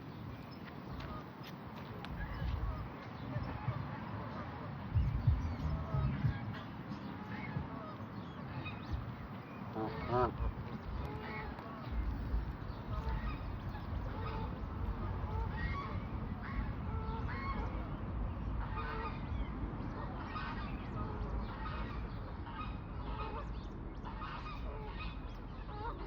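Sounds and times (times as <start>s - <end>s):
coots calling: 0.0s - 26.0s
low rumble: 4.9s - 6.5s, 8.8s - 22.1s.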